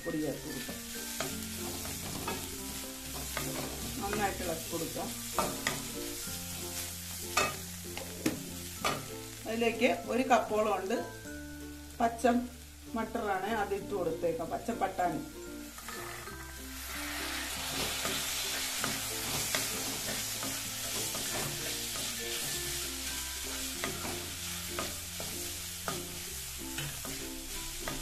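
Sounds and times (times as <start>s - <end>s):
vegetables sizzling in hot oil: 0.0s - 28.0s
spatula scraping and tapping pan: 0.6s - 4.4s.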